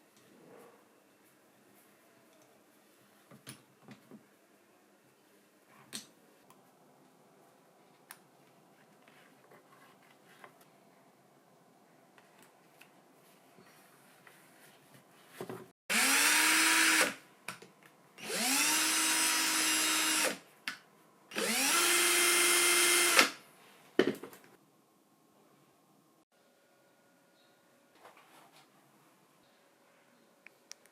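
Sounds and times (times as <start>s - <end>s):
cordless drill motor whine: 15.9s - 17.1s, 18.2s - 20.4s, 21.4s - 23.3s.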